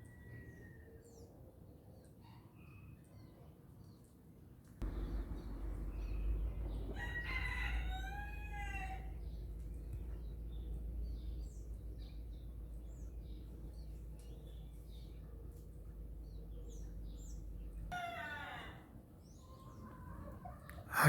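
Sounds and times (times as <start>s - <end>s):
rooster crowing: 4.8s - 9.5s, 17.9s - 19.0s
low rumble: 4.8s - 17.9s
small birds chirping: 4.8s - 18.0s.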